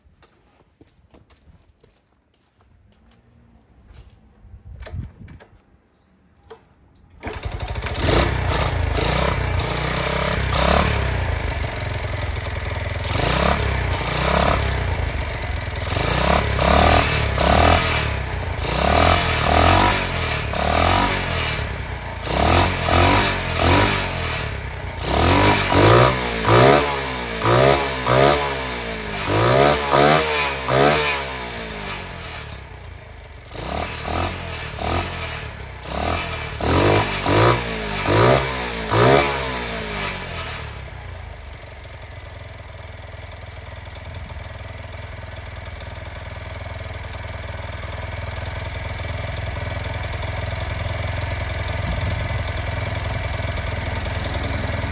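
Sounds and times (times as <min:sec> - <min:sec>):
motorcycle engine starting: 0:04.6 - 0:54.9
engine revving: 0:07.2 - 0:41.4, 0:51.6 - 0:54.9.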